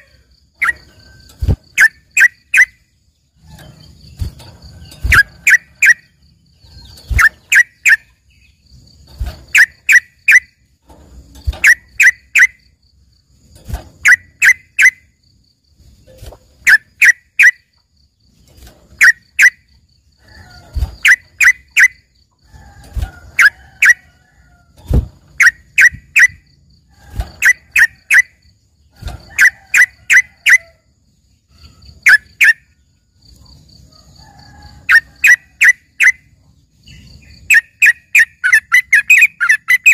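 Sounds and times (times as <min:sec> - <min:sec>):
bird singing whistled notes: 0:00.0 - 0:02.9, 0:03.5 - 0:08.7, 0:09.5 - 0:10.6, 0:25.4 - 0:26.5, 0:34.9 - 0:39.9.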